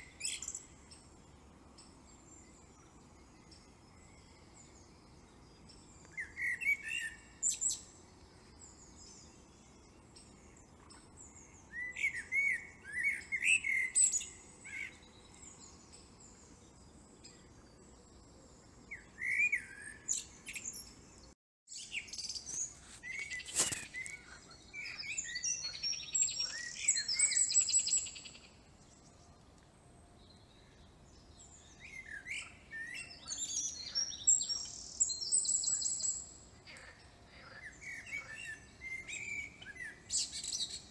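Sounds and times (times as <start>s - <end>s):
small birds singing and chirping: 0.0s - 40.9s
bird trill: 21.8s - 29.1s, 30.2s - 40.9s.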